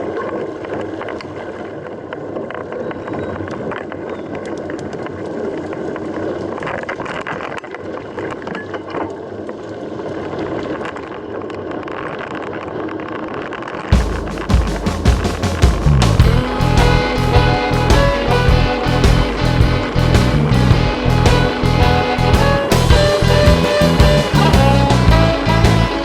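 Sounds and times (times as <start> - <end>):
wind: 0.0 - 26.0
bike tyres rumbling: 12.4 - 22.7
music with heavy bass: 14.0 - 26.0.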